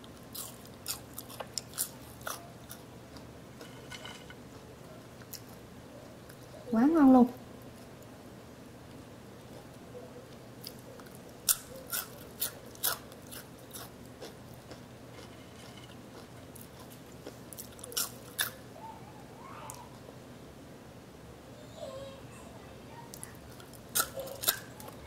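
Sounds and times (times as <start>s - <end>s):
crunching fries: 0.0s - 4.6s, 9.4s - 18.6s, 23.1s - 25.0s.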